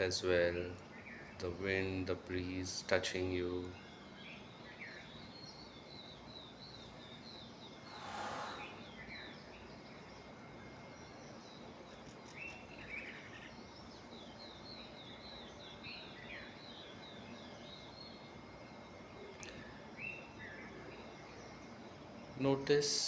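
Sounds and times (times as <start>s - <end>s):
lower bird calls: 0.0s - 22.4s
rush of breeze: 0.0s - 23.0s
small birds chirping: 0.0s - 23.0s.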